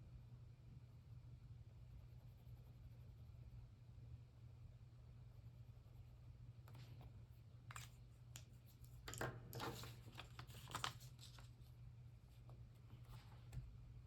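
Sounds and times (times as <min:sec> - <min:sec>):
steady low hum: 0:00.0 - 0:14.0
paper rustling: 0:09.6 - 0:11.7.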